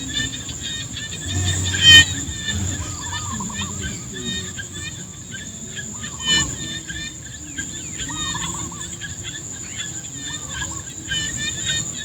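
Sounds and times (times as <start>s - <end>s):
chirping and warbling animal calls: 0.6s - 7.5s
high-pitched insect drone: 1.0s - 6.8s
low rumble: 1.2s - 4.8s.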